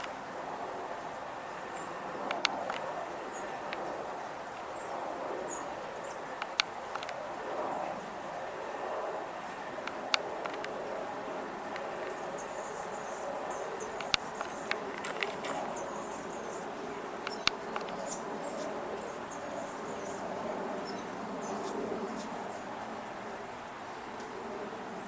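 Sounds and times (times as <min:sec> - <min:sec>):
songbirds chirping: 0:00.0 - 0:25.0
steady background hum: 0:00.0 - 0:25.0
sharp clicks: 0:02.2 - 0:03.0, 0:06.4 - 0:07.2, 0:09.8 - 0:10.8, 0:13.8 - 0:16.0, 0:17.2 - 0:18.2.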